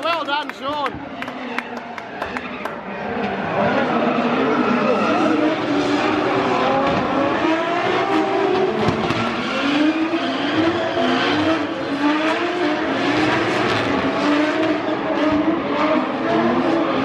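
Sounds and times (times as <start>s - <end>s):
car engines revving hard: 0.0s - 17.0s.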